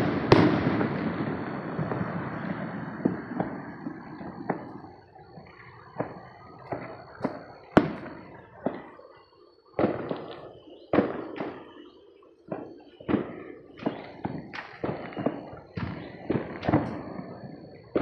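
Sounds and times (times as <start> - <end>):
fireworks and firecrackers banging: 0.0 - 18.0.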